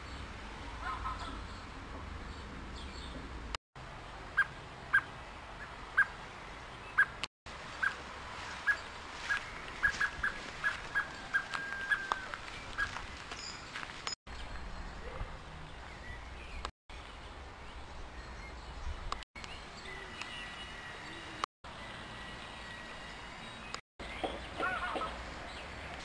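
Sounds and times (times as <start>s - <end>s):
bird calling sharp notes: 8.6s - 13.0s.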